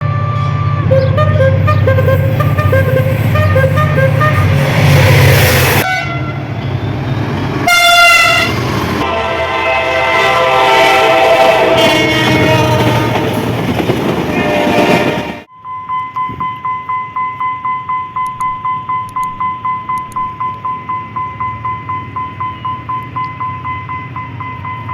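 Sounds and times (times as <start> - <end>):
diesel locomotive horn blasts: 0.0 - 6.8, 7.6 - 13.6, 14.2 - 15.5
deep engine rumble: 0.6 - 7.7.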